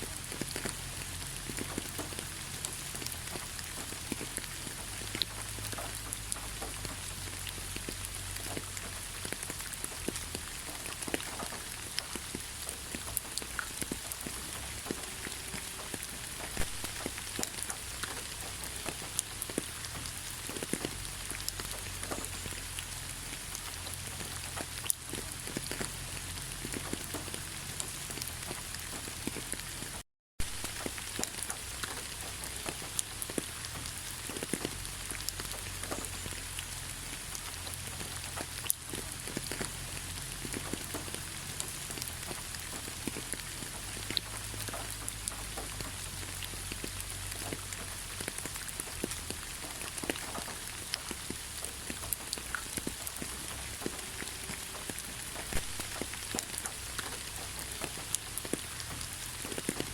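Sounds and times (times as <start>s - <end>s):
raindrops ticking: 0.0s - 59.9s
steady rain hiss: 0.0s - 59.9s.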